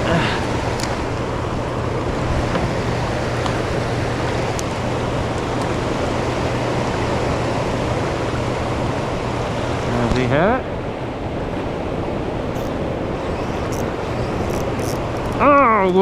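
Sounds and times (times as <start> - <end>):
constant low hum: 0.0 - 16.0
fast-flowing river water: 0.0 - 16.0
faint ticks: 0.6 - 1.0, 12.6 - 15.4.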